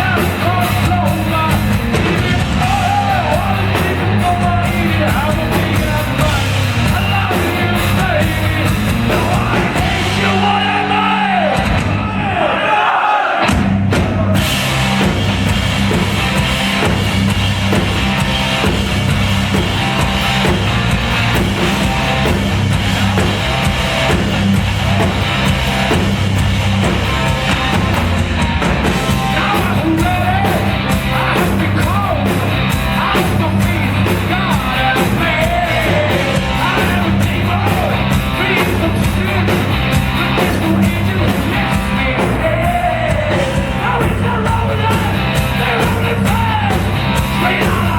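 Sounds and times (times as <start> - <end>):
distorted electric guitars: 0.0 - 12.2, 13.4 - 47.9
bass guitar: 0.0 - 12.5, 13.4 - 47.9
drum kit: 0.0 - 12.5, 13.4 - 47.9
lead vocal singing: 0.0 - 14.6, 29.0 - 47.9.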